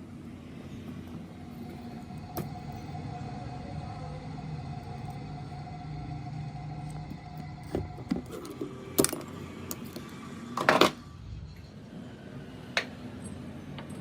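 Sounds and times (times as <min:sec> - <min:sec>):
machine hum: 0:00.0 - 0:14.0
metal tools clinking: 0:13.2 - 0:14.0.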